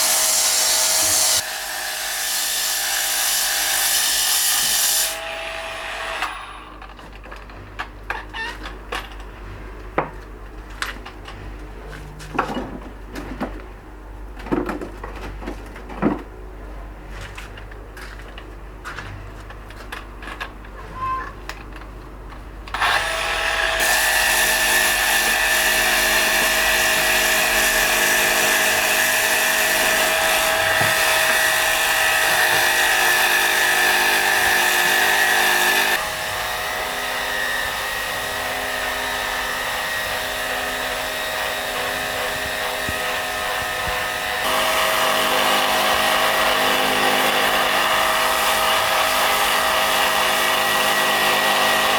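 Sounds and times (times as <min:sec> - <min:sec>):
power tool whining on stone: 0:00.0 - 0:06.7, 0:22.8 - 0:51.9.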